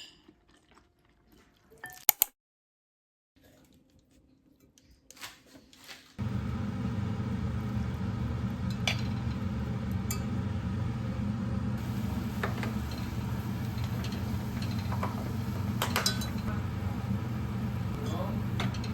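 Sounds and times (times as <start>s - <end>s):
steady low hum: 6.2s - 18.9s
dishes and cutlery clinking: 12.4s - 16.6s, 18.4s - 18.9s.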